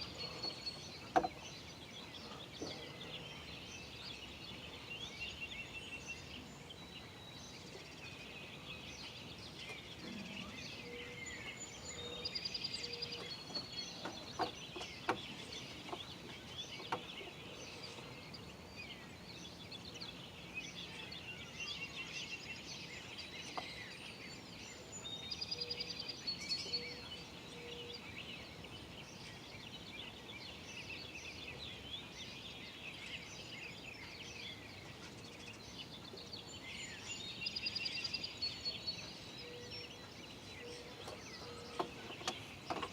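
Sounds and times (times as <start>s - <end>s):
songbirds chirping: 0.0s - 42.9s.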